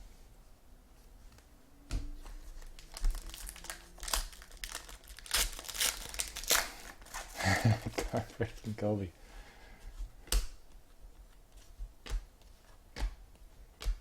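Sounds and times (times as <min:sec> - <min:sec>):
plastic wrapper crinkling and tearing: 0:02.4 - 0:08.4.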